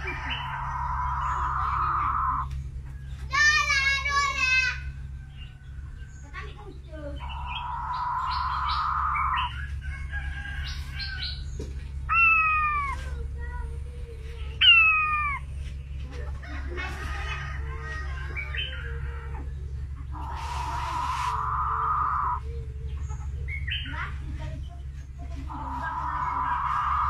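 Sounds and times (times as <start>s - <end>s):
bird buzzy trill: 0.0s - 2.7s, 7.0s - 13.6s, 20.1s - 24.1s
bird chirps: 0.0s - 13.2s, 14.4s - 16.1s.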